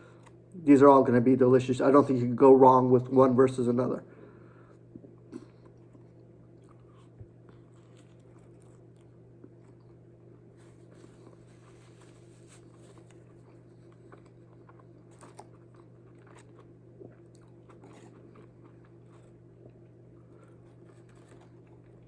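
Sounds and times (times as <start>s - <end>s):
low electrical hum: 0.0s - 22.0s
person chewing food: 4.6s - 22.0s.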